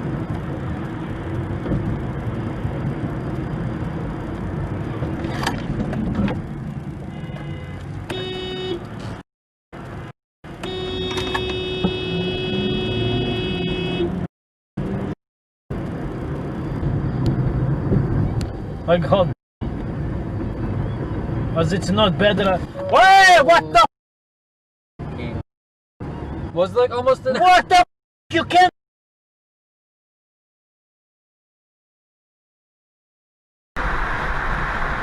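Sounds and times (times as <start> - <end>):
car road and engine noise: 0.0 - 23.9, 25.0 - 25.4, 26.0 - 28.7, 33.8 - 35.0
car horn honking: 7.1 - 8.9, 10.5 - 14.3.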